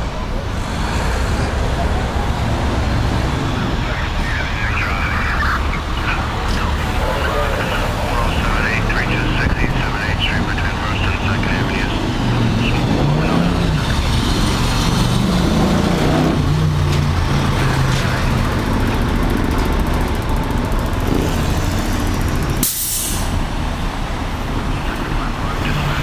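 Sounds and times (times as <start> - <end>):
fire truck diesel engine rumble: 0.0 - 26.0
air brakes hissing: 22.6 - 23.4.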